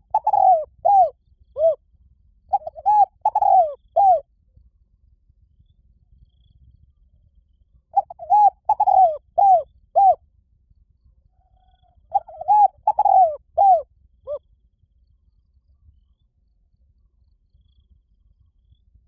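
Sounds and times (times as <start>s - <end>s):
dove cooing: 0.0s - 1.8s, 2.5s - 4.2s, 8.0s - 10.2s, 11.6s - 14.4s.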